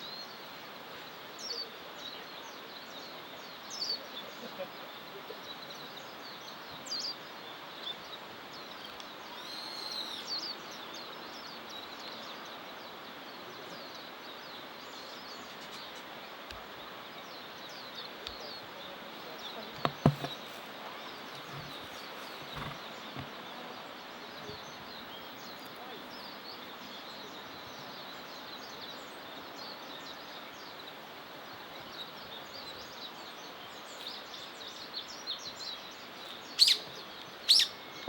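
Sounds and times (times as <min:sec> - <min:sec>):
outdoor background noise: 0:00.0 - 0:38.0
small birds chirping: 0:00.0 - 0:38.0
whistled bird call: 0:09.3 - 0:10.5, 0:36.6 - 0:38.0
sharp knocks: 0:19.8 - 0:20.4.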